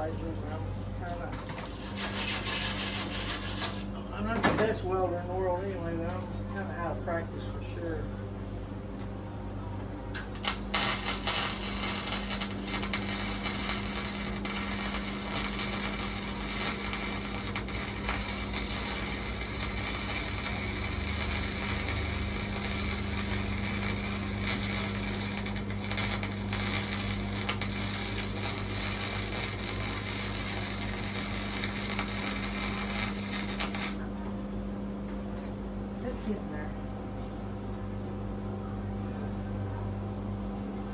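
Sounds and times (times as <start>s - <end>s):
steady low hum: 0.0s - 40.9s
welding arc crackling: 1.6s - 3.9s, 10.1s - 34.1s.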